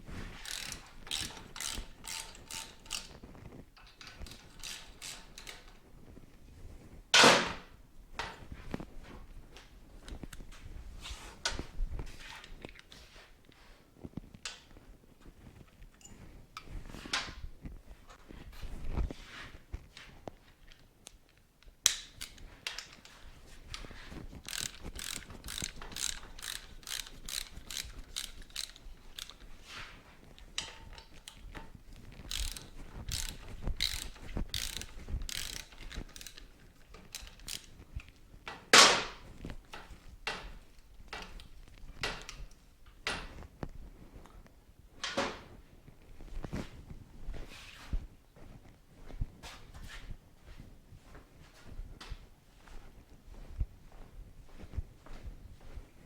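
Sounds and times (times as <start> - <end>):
tools and parts clinking: 0.3 - 5.9, 15.9 - 17.4, 20.0 - 43.4
ratchet wrench clicking: 0.4 - 3.1, 4.0 - 5.7, 24.4 - 29.4, 32.3 - 37.7.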